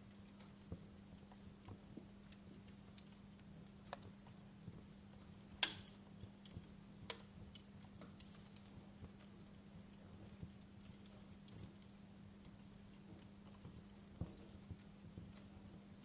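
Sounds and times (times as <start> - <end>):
faint low hum: 0.0 - 16.0
wood fire crackling: 0.0 - 16.0.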